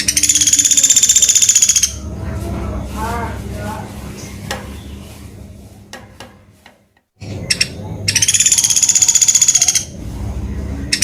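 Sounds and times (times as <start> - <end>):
woodpecker calling: 0.0 - 2.0, 7.2 - 9.9
fast buzzy trill: 0.0 - 5.2, 7.4 - 10.0
low hum: 0.0 - 11.0.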